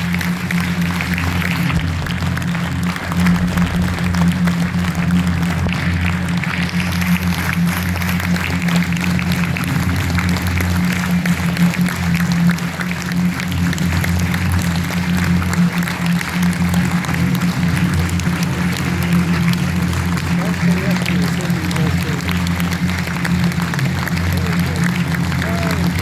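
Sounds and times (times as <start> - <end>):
audience applauding: 0.0 - 26.0
music with low drone: 0.0 - 26.0.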